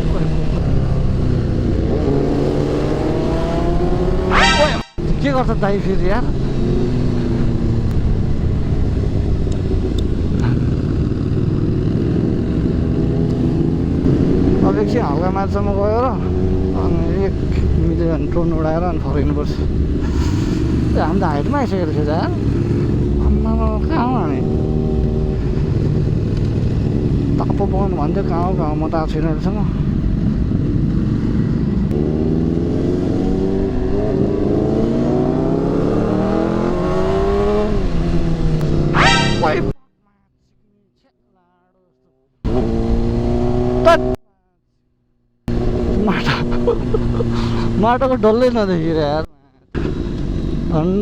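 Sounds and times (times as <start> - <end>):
motorcycle engine running: 0.0 - 39.7, 45.5 - 49.2, 49.8 - 51.0
wind noise: 0.0 - 39.7
road noise: 0.0 - 39.8, 42.4 - 44.2, 45.2 - 51.0.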